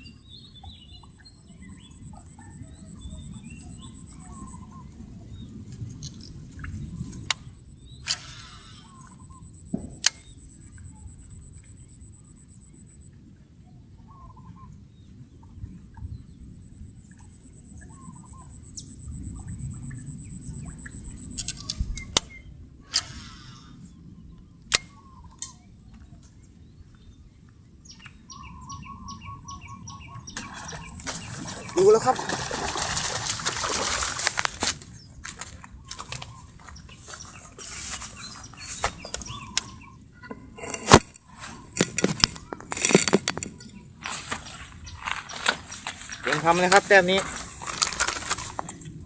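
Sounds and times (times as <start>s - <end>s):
birds chirping: 0.0s - 13.0s, 15.3s - 49.0s
sharp clicks: 9.6s - 10.8s, 24.7s - 25.5s
high-pitched whine: 15.8s - 22.3s.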